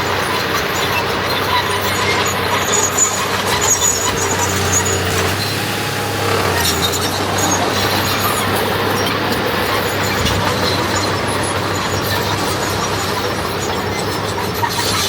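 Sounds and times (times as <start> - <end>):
heavy machinery diesel engine: 0.0 - 14.4
short high-pitched squeaks: 3.6 - 8.7.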